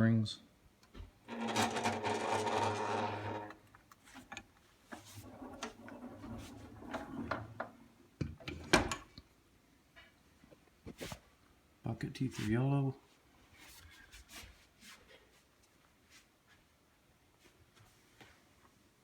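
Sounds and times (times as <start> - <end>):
rough rattling rub: 1.3 - 7.6.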